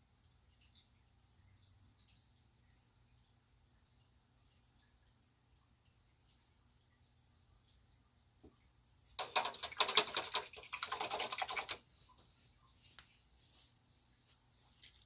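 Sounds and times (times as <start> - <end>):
paint marker rattling when shaken: 9.1 - 11.8.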